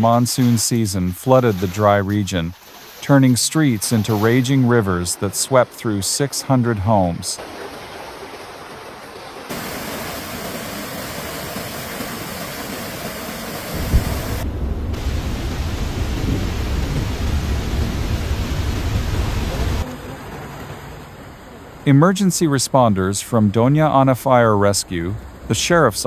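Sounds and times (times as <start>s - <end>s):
rushing floodwater: 0.0s - 26.0s
heavy rain: 2.8s - 21.8s
deep low rumble: 13.8s - 19.8s.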